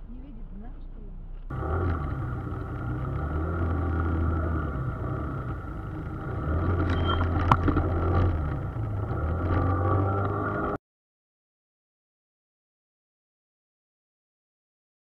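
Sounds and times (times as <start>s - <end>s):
vehicle engine and road hum: 0.0s - 10.8s.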